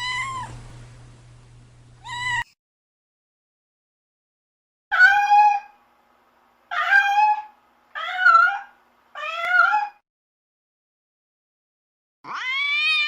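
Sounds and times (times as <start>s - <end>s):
cat meowing: 0.0s - 0.6s, 2.0s - 2.6s, 4.9s - 5.8s, 6.7s - 10.0s, 12.2s - 13.0s.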